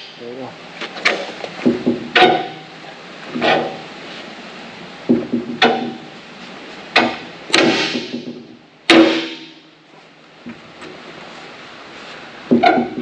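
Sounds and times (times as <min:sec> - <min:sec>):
tools clanking on metal: 0:00.8 - 0:02.7, 0:03.3 - 0:03.8, 0:05.5 - 0:06.1.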